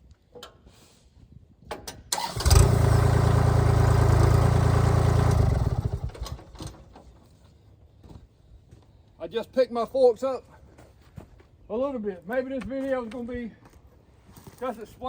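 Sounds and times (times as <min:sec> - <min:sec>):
engine knocking and starting: 0:02.2 - 0:07.0.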